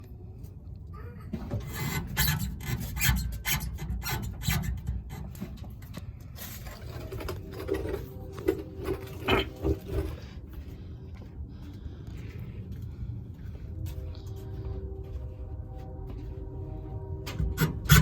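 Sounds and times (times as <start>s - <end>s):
truck suspension creaking: 1.3s - 10.4s, 17.0s - 18.0s.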